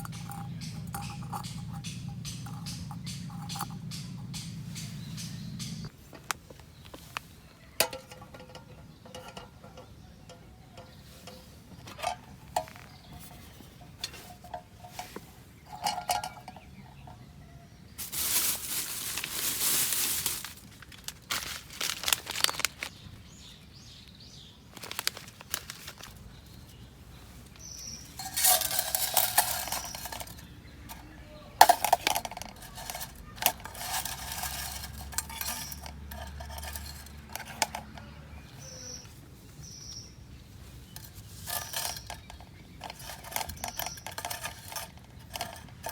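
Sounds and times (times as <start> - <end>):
rustling: 0.0 - 9.4, 10.8 - 17.1, 17.9 - 23.1, 24.7 - 45.9
metallic clinks of cookware: 31.6 - 38.1.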